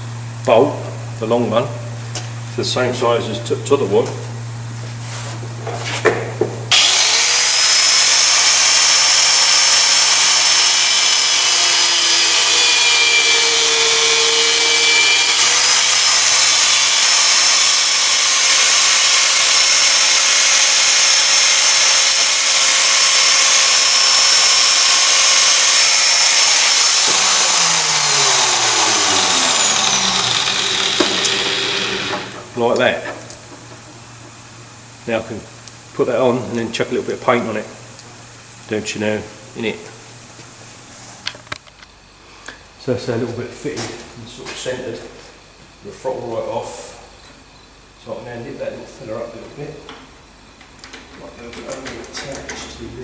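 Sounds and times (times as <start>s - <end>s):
angle grinder cutting bolt: 6.7s - 32.5s
grinder motor winding down: 6.7s - 32.5s.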